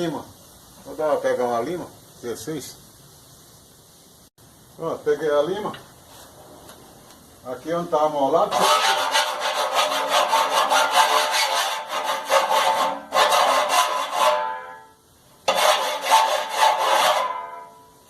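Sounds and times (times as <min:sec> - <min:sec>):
hand file rasping on metal: 0:08.5 - 0:14.7, 0:15.4 - 0:17.6.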